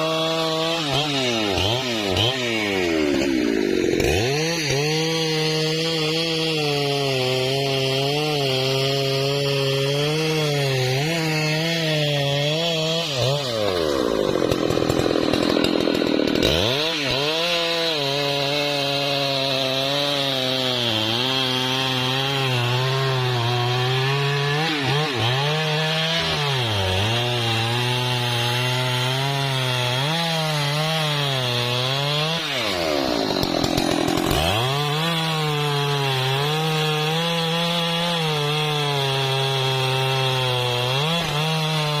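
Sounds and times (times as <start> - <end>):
chainsaw cutting wood: 0.0 - 42.0.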